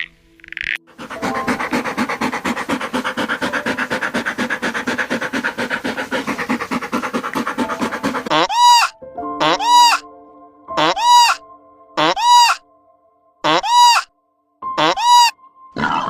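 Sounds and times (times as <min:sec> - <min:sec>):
animal pulsed rattling call: 0:00.0 - 0:08.9
animal rising and falling cry: 0:01.0 - 0:10.0, 0:10.8 - 0:11.4, 0:12.0 - 0:12.6, 0:13.5 - 0:14.1, 0:14.8 - 0:16.0.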